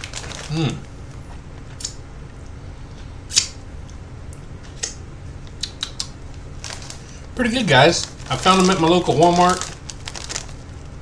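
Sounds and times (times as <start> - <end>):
cheese puffs crunching: 0.0 - 1.2, 5.5 - 11.0
steady low hum: 0.0 - 11.0.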